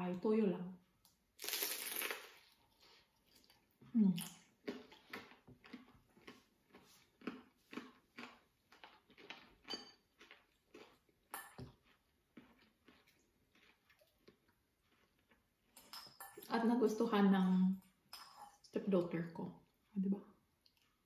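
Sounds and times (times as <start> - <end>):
chewing crunchy food: 1.4 - 15.8.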